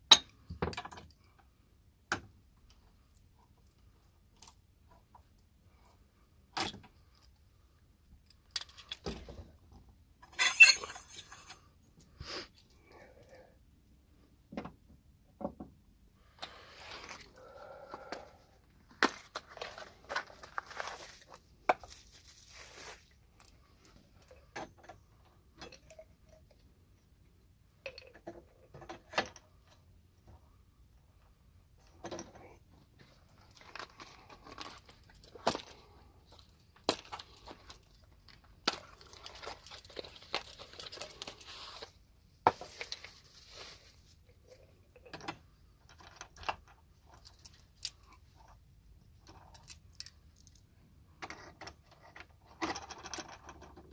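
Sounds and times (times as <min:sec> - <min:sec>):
metal tools clinking: 0:10.2 - 0:11.7
scraping and rustling: 0:19.2 - 0:23.2, 0:39.0 - 0:44.2.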